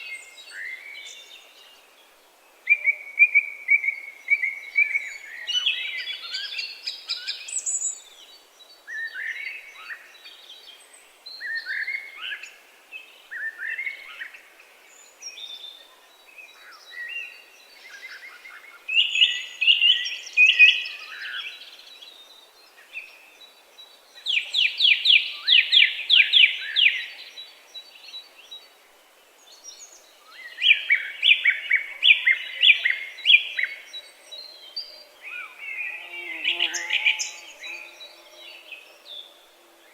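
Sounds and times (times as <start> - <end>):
songbirds singing trills: 29.4 - 39.9.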